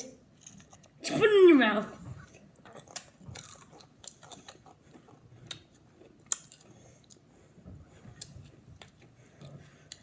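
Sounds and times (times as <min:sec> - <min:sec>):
person chewing crisps: 0:00.3 - 0:01.0, 0:02.2 - 0:07.3.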